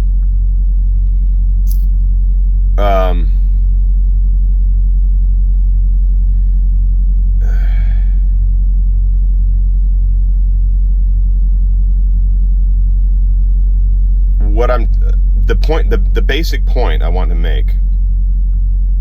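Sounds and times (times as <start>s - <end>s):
loud low hum with throb: 0.0s - 19.0s
short breath-like sound: 7.4s - 8.3s.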